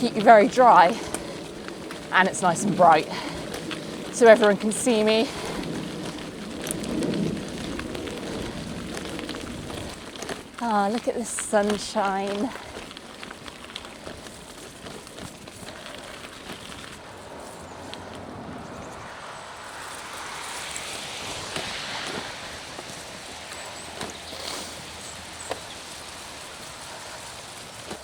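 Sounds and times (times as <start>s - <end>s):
bike tyre noise: 0.0s - 28.0s.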